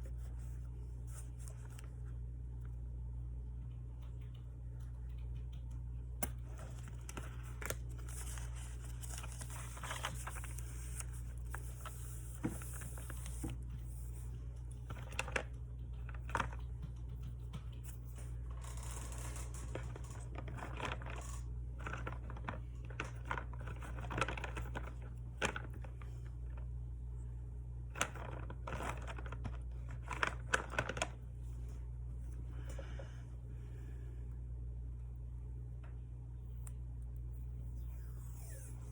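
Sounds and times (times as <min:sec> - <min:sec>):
steady low hum: 0:00.0 - 0:38.9
scattered clicks: 0:03.6 - 0:06.5
paper rustling: 0:06.4 - 0:14.2.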